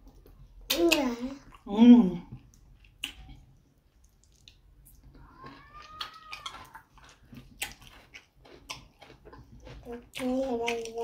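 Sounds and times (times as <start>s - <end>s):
wet chewing and mouth clicks: 2.3s - 11.0s.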